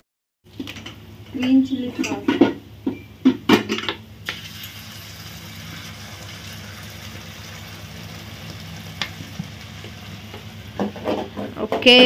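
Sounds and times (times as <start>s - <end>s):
vegetables sizzling in a wok: 4.2s - 11.4s.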